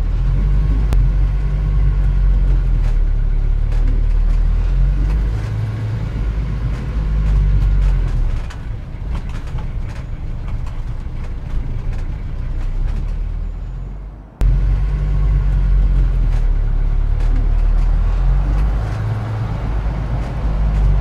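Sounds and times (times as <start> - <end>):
vehicle engine rumble: 0.0 - 21.0
scattered clicks: 15.4 - 21.0.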